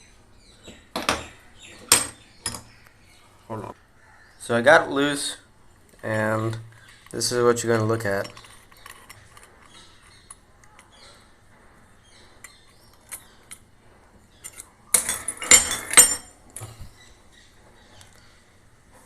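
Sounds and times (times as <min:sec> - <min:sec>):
metal parts clattering: 0:08.0 - 0:10.9, 0:14.4 - 0:16.4.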